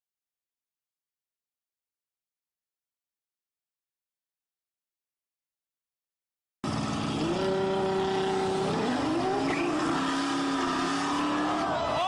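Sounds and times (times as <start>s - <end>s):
car engine accelerating hard: 6.6s - 12.0s.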